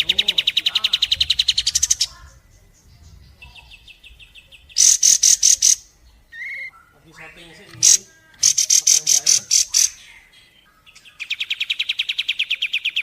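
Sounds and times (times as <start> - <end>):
woodpecker rattling trill: 0.0 - 2.2, 4.8 - 10.1.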